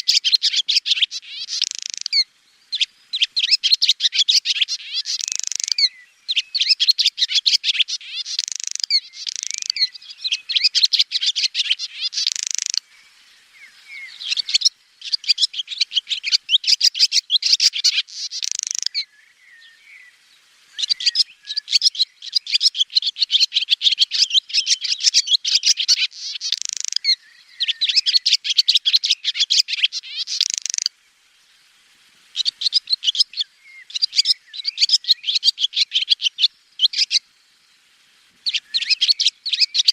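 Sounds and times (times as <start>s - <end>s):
swallow twittering: 0.0s - 20.1s, 20.7s - 30.9s, 32.3s - 37.2s, 38.4s - 39.9s.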